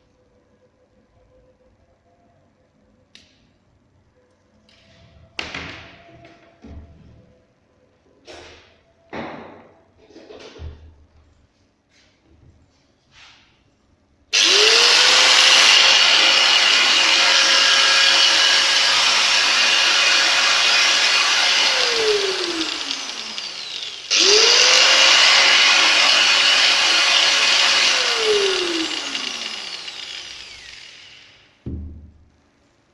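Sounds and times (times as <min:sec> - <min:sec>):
angle grinder whining: 0:14.3 - 0:31.6.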